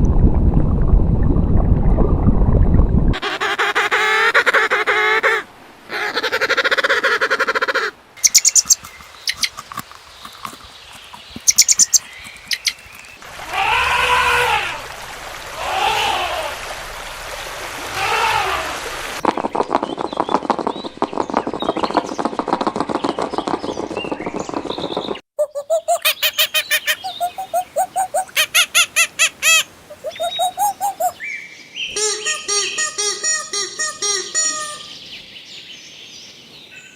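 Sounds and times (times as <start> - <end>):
high bird chirps: 8.2 - 13.2, 24.7 - 35.3
fowl calling: 25.9 - 31.2, 31.9 - 35.0.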